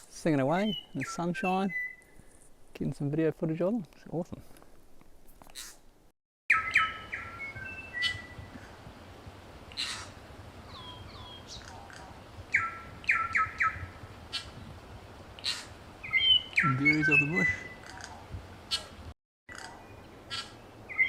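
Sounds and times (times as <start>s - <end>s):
bellbirds singing: 6.5s - 8.5s, 16.0s - 17.9s
bird clicks and slurred calls: 9.7s - 10.1s, 10.7s - 14.6s, 15.4s - 21.0s.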